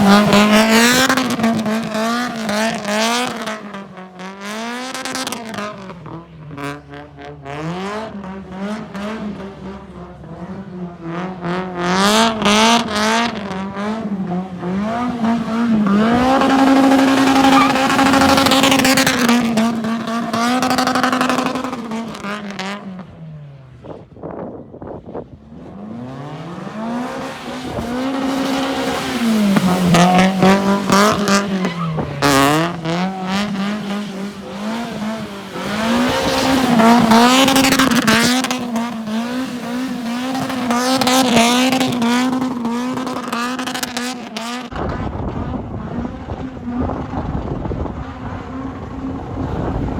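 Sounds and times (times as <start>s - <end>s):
car engine revving hard: 0.0s - 23.0s, 25.5s - 49.9s
tyres squealing: 16.4s - 19.4s, 27.5s - 41.6s.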